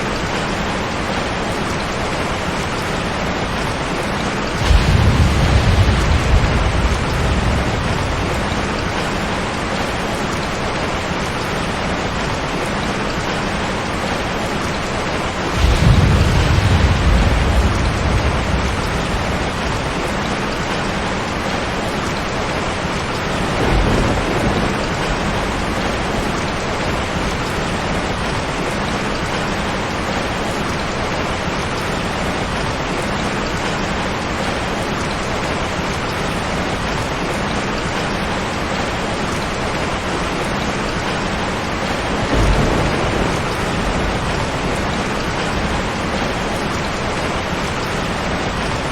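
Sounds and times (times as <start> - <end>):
heavy rain: 0.0 - 48.9
rolls of thunder: 4.6 - 10.0, 15.4 - 20.7, 23.4 - 27.5, 42.2 - 47.2.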